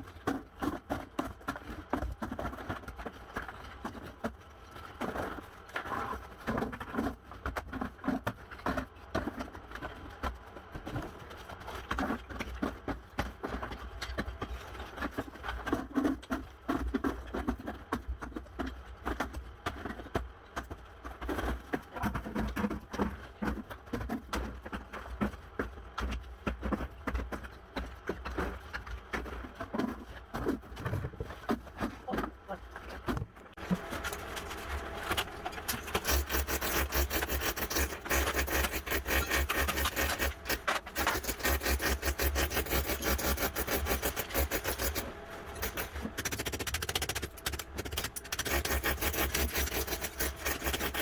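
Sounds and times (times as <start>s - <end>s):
floor demolition knocking and scraping: 26.0s - 51.0s.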